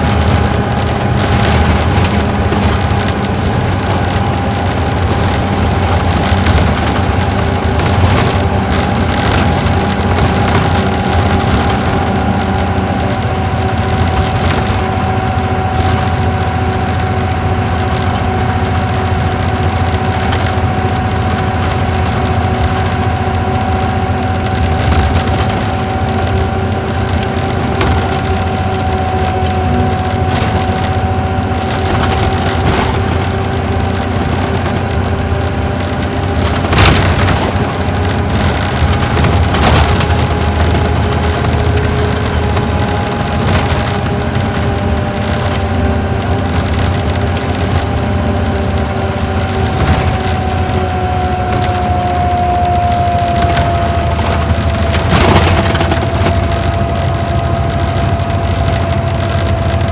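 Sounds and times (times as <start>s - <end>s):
bus engine and road drone: 0.0s - 59.9s
bus knocking over bumps: 0.0s - 59.9s
steady whine: 0.0s - 59.9s.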